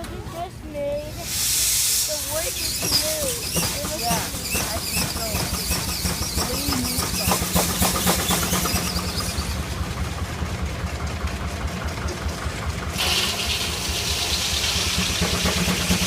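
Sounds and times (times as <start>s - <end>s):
steam hiss: 1.1s - 9.7s, 12.9s - 16.0s
steam engine beating: 1.2s - 16.0s.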